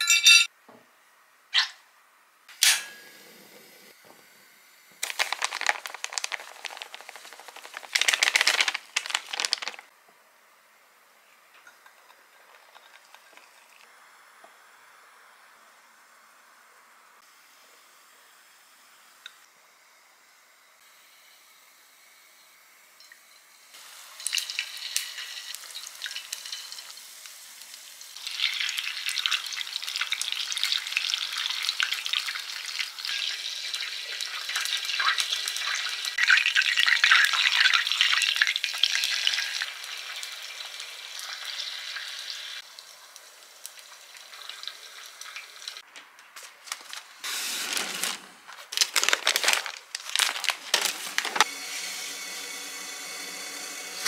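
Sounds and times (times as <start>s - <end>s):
knocks and handling sounds: 5.0s - 9.9s, 48.0s - 51.5s
food deep-frying in oil: 11.6s - 15.0s, 21.9s - 45.9s.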